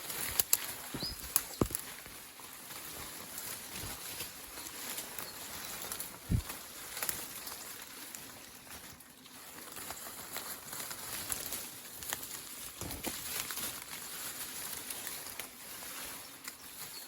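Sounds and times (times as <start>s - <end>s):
twigs cracking: 0.0s - 8.8s
footsteps crunching through dry leaves: 0.0s - 17.0s.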